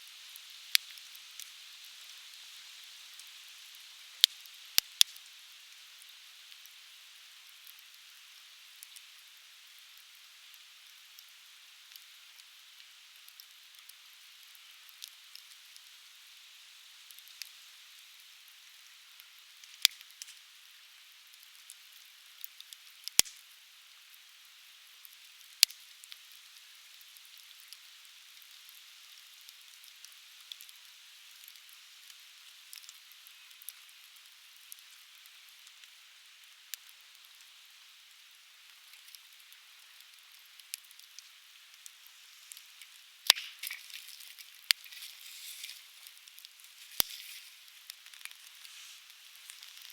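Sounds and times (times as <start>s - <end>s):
fire crackling: 21.3s - 23.4s, 26.8s - 49.9s.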